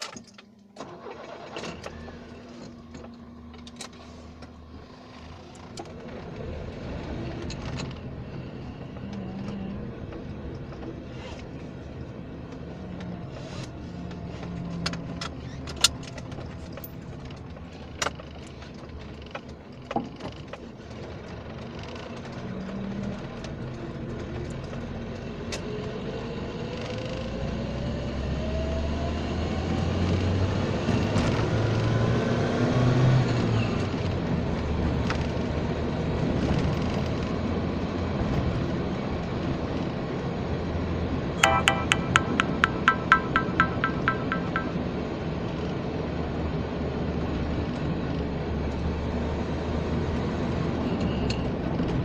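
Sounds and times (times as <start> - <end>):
sharp knocks or clicks: 41.4 - 45.2.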